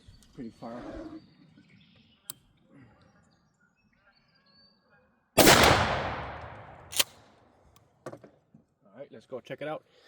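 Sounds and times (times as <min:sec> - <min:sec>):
shotgun shot: 0:05.4 - 0:07.2.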